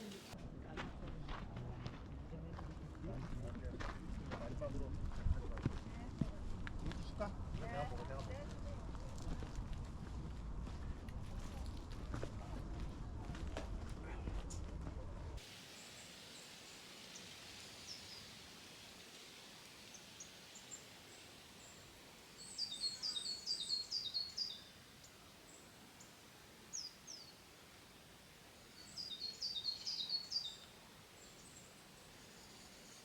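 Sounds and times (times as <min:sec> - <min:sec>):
faint steady hiss: 0:00.0 - 0:00.4, 0:15.4 - 0:33.0
small bird chirping: 0:22.4 - 0:24.7, 0:28.8 - 0:33.0.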